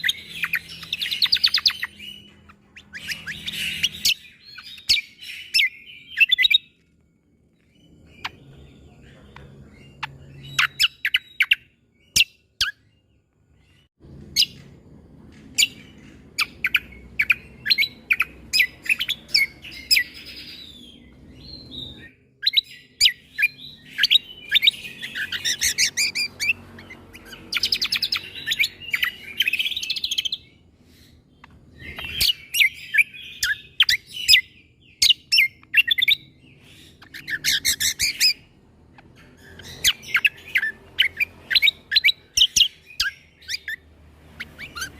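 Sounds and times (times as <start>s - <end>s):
songbird singing rapid trills: 0.0s - 14.7s, 15.5s - 44.9s.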